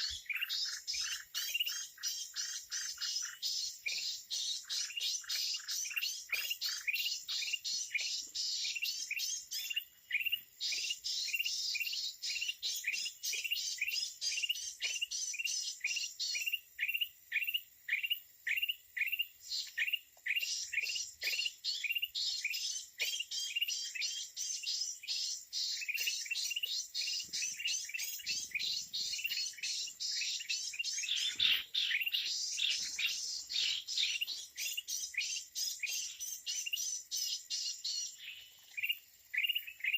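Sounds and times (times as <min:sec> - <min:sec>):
birds chirping: 0:00.0 - 0:39.9
high bird chatter: 0:00.0 - 0:39.9.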